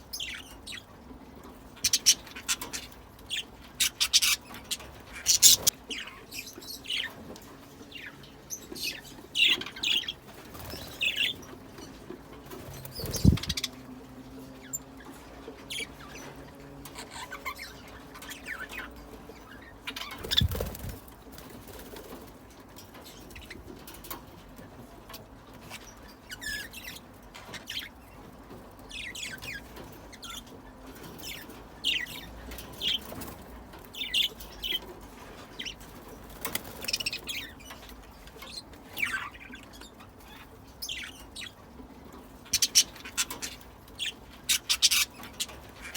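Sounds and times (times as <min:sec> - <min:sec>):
budgerigars chirping: 0:01.8 - 0:13.8, 0:14.6 - 0:20.9, 0:28.9 - 0:33.3, 0:36.5 - 0:41.6, 0:42.4 - 0:45.9
wings flapping: 0:10.3 - 0:11.4, 0:12.4 - 0:13.8, 0:20.1 - 0:22.3, 0:36.3 - 0:37.2.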